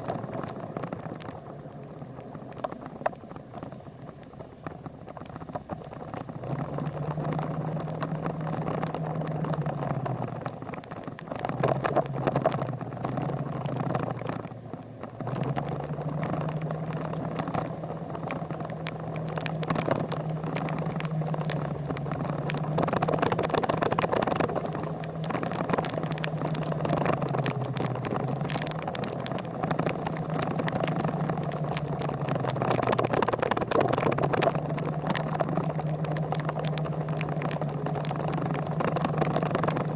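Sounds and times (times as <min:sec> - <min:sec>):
wind and road noise: 0:00.0 - 0:39.9
motorcycle engine running: 0:11.4 - 0:39.9.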